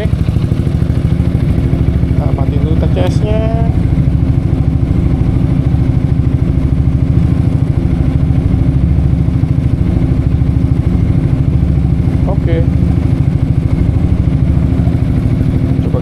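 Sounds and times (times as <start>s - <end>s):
scooter engine idling: 0.0s - 16.0s.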